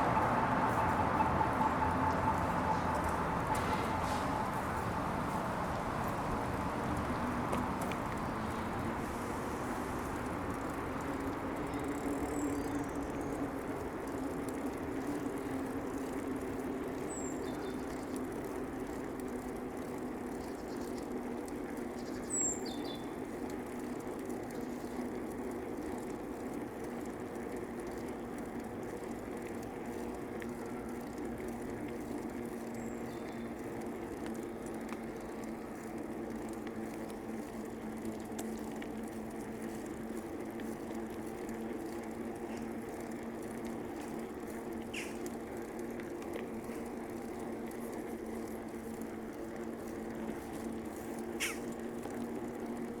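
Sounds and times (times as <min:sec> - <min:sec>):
bicycle tyres humming on pavement: 0:00.0 - 0:53.0
birds chirping: 0:51.4 - 0:51.7.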